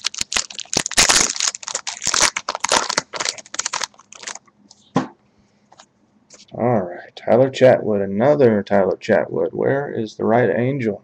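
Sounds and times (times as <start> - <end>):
foil wrapper crinkling: 0.0 - 4.4.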